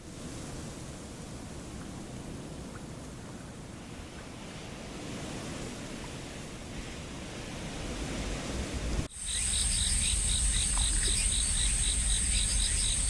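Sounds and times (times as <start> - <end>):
insects buzzing: 9.1 - 13.0
rhythmic insect chirp: 9.1 - 13.0.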